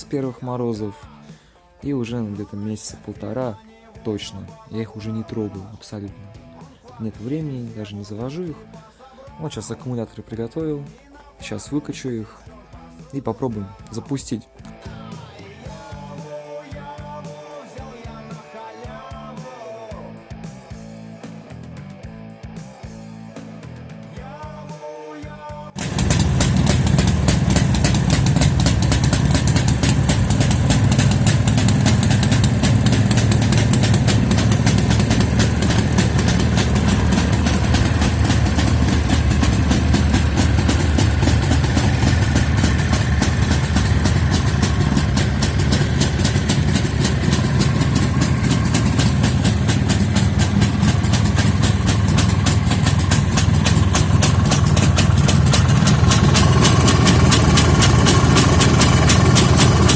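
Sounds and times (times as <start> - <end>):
two-stroke motorcycle engine idling: 25.8 - 59.9.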